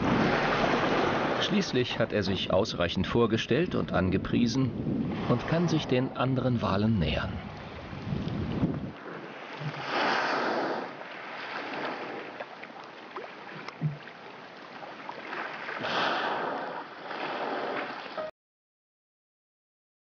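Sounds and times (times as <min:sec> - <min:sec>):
water washing and splashing: 0:00.0 - 0:01.8, 0:07.1 - 0:18.2
soft low thump: 0:13.7 - 0:14.1.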